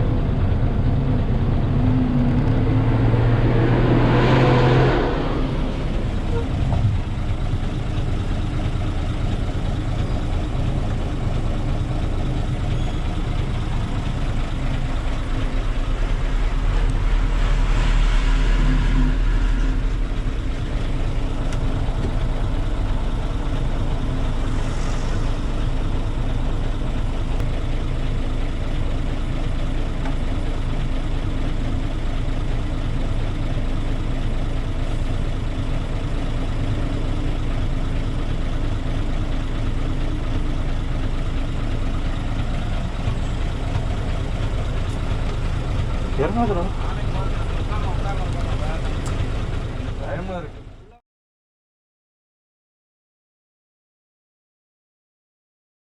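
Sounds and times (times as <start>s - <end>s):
truck diesel engine rumbling: 0.0s - 51.0s.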